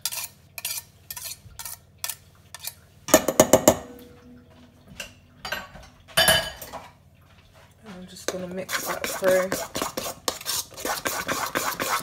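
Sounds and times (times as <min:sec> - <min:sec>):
metal utensils clinking against a bowl: 0:00.0 - 0:06.9.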